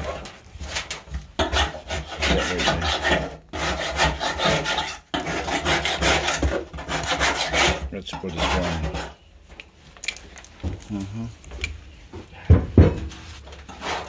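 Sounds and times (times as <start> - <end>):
rough rubbing and scraping: 0.0 - 9.2, 13.1 - 14.0.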